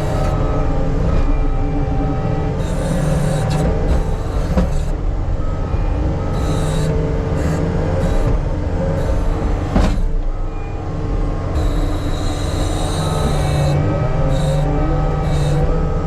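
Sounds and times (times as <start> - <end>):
diesel engine running under work: 0.0 - 16.0
high-pitched squealing: 11.6 - 16.0.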